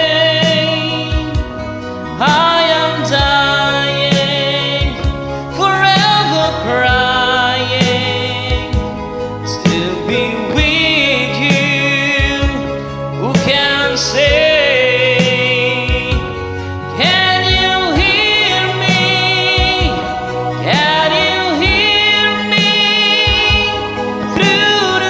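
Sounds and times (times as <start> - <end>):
slow ballad music: 0.0 - 25.0
wordless choir-like singing: 17.0 - 25.0.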